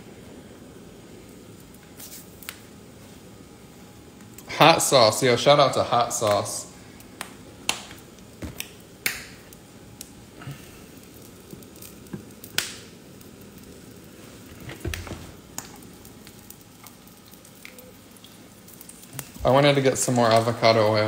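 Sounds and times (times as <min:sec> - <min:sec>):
oil crackling and popping: 0:01.1 - 0:21.0
food sizzling in a pan: 0:07.8 - 0:21.0.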